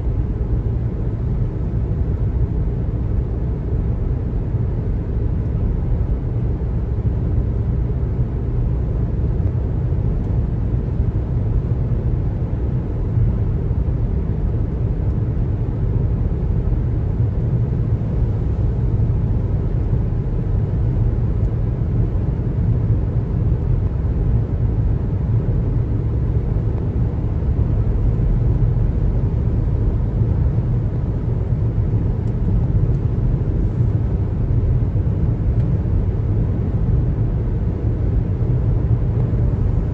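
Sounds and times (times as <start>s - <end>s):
car road noise: 0.0s - 39.9s.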